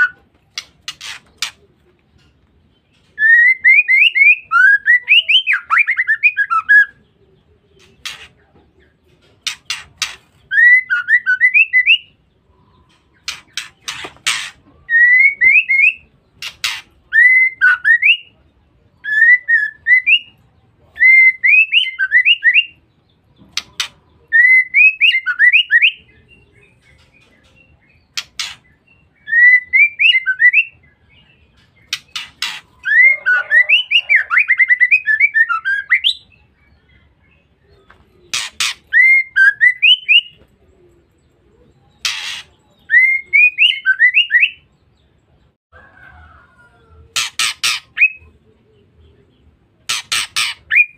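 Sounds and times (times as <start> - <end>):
harsh clicking bird notes: 0.0 - 4.4, 9.2 - 12.0, 12.9 - 18.0, 23.4 - 24.0, 26.8 - 30.4, 31.6 - 33.0, 37.9 - 40.4, 42.0 - 44.2, 47.1 - 48.3, 49.8 - 50.9
bird whistled calls: 31.9 - 36.3, 38.3 - 40.4, 42.0 - 44.6, 50.1 - 50.9.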